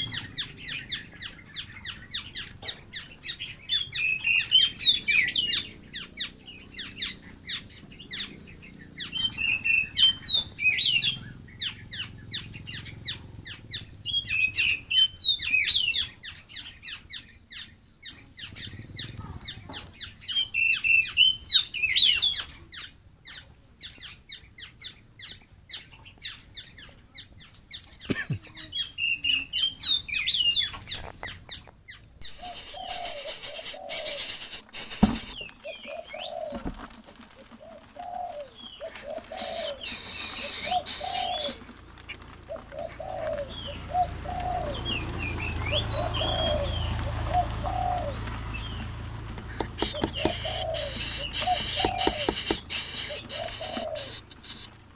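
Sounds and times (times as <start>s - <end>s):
birds chirping: 0.0s - 54.9s
rapid ticking: 32.2s - 35.4s, 49.4s - 53.8s
wing flapping: 32.2s - 35.4s, 38.9s - 43.6s, 47.4s - 54.4s
dove cooing: 32.2s - 54.9s.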